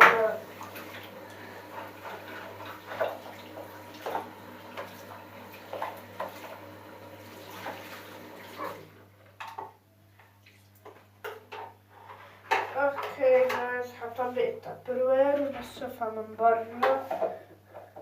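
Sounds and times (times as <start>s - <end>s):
tap water splashing into container: 2.6s - 6.6s.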